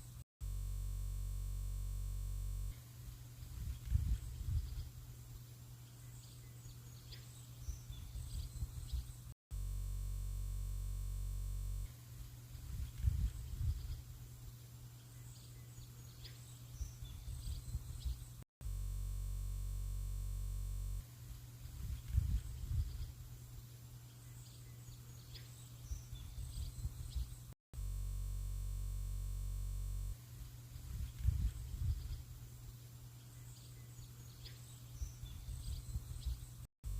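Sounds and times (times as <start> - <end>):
low electronic hum: 0.0 - 36.9
birds chirping: 3.1 - 9.3, 12.2 - 18.4, 21.2 - 27.5, 30.3 - 36.7
wind gusts on microphone: 3.4 - 4.9, 12.6 - 14.0, 21.6 - 23.1, 30.8 - 32.2.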